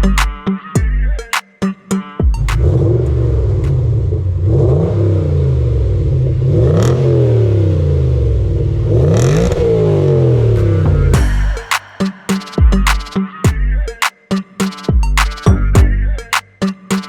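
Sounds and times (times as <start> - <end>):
car engine revving: 2.5 - 13.1.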